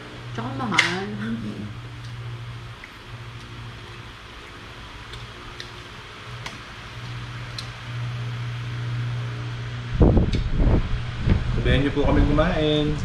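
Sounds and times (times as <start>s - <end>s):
electric fan hum: 0.0s - 13.0s
faint eating clicks: 1.9s - 7.9s.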